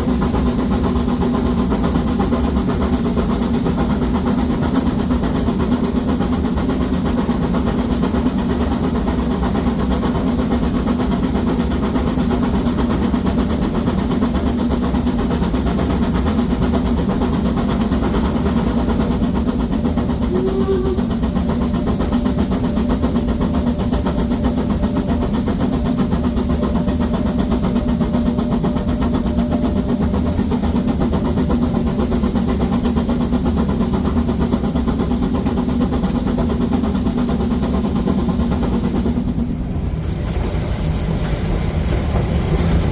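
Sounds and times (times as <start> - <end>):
steam locomotive exhaust: 16.0 - 42.9.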